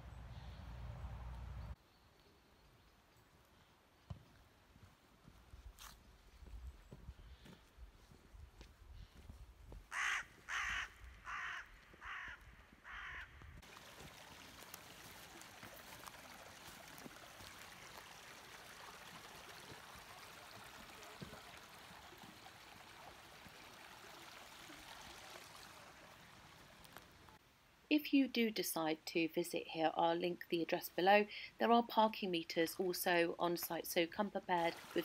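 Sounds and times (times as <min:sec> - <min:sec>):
crow cawing: 0:09.9 - 0:13.4
stream trickling: 0:13.6 - 0:27.4, 0:32.1 - 0:35.0.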